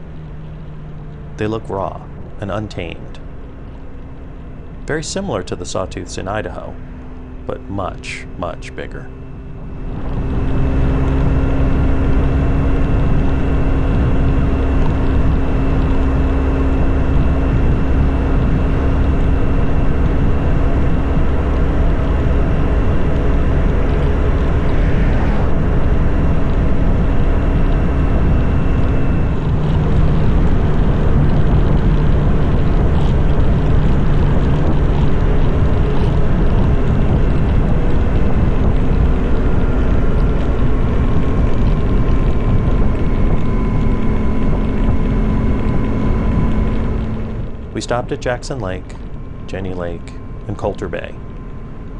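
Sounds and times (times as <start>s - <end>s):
motorcycle engine cruising: 0.0s - 51.9s
wind rushing: 9.4s - 48.0s.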